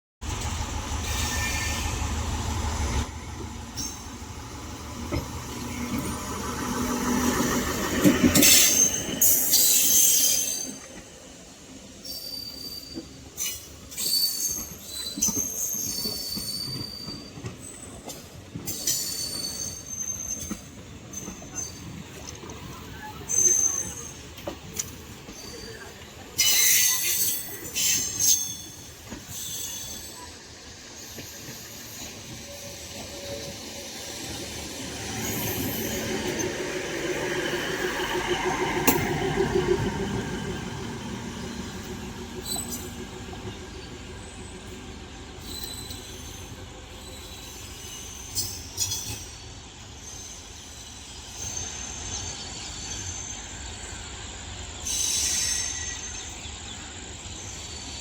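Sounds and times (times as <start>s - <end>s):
train rolling rumble: 0.2s - 58.0s
metallic wheel squeal: 12.1s - 17.9s, 18.7s - 21.9s, 25.3s - 30.3s, 42.4s - 43.0s, 45.4s - 49.4s, 54.8s - 56.4s.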